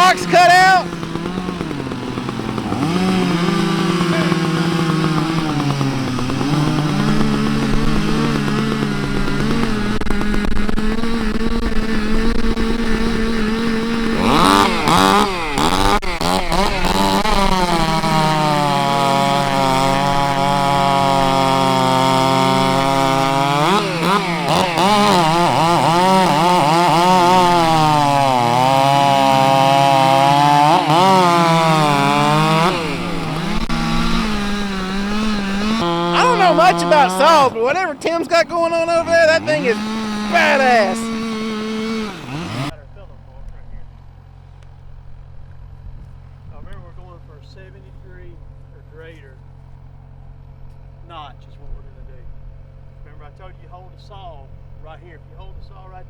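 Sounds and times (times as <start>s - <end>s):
chainsaws cutting and revving: 0.0s - 42.8s
loud chainsaw revving: 0.0s - 42.8s.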